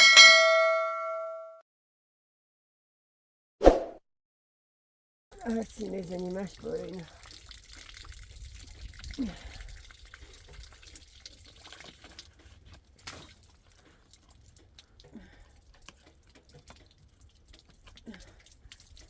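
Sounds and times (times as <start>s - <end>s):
water dripping: 5.3s - 19.0s.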